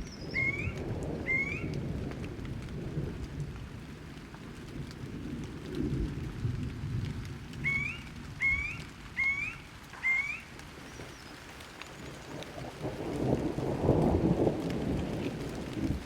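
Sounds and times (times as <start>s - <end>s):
low rolling thunder: 0.0s - 10.8s, 12.0s - 16.0s
steady rain: 0.0s - 16.0s
bird calling: 0.1s - 1.7s, 7.6s - 12.4s.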